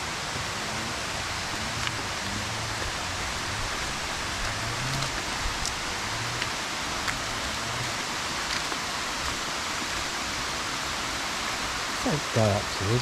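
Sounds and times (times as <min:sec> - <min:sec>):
rushing water of stream: 0:00.0 - 0:13.0
faint light ticks: 0:01.8 - 0:02.0.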